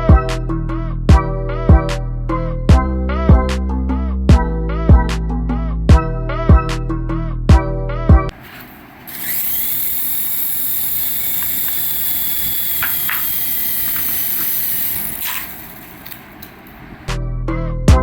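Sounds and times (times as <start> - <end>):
small electric motor whining: 9.1 - 16.7.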